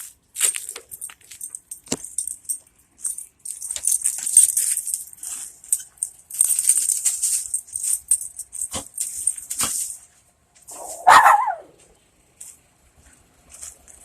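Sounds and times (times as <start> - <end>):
crunching footsteps: 0.0 - 2.3, 3.0 - 14.0
small dog barking: 10.7 - 11.8.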